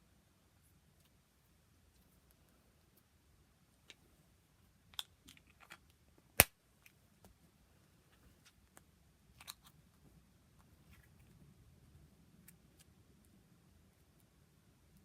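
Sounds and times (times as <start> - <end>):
sharp plastic snap: 6.4 - 6.6.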